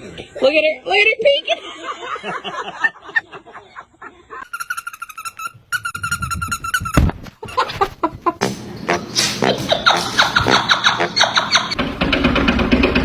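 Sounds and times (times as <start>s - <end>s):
high-pitched animal calls: 4.5s - 7.8s
loud knock: 8.4s - 12.8s.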